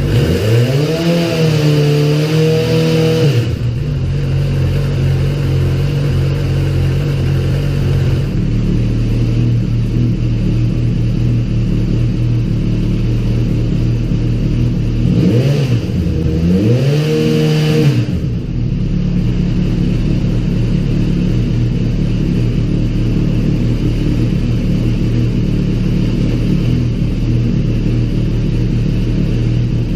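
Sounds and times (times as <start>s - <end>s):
engine throttle blips: 0.0s - 29.9s
motorcycle engine idling: 3.4s - 16.6s, 18.1s - 29.9s.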